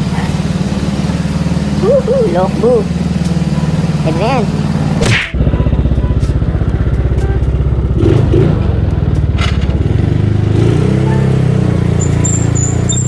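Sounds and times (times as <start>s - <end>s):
scooter engine idling: 0.0s - 13.0s.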